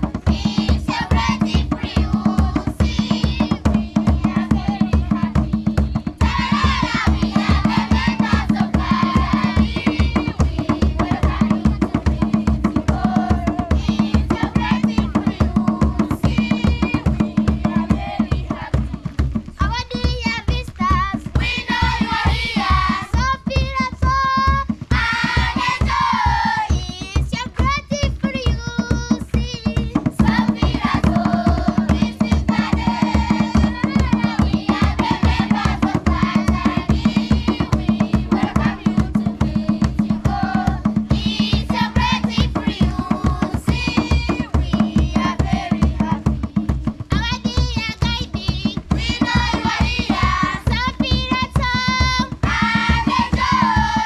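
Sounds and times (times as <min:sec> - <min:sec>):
fast drum beat: 0:00.0 - 0:54.0.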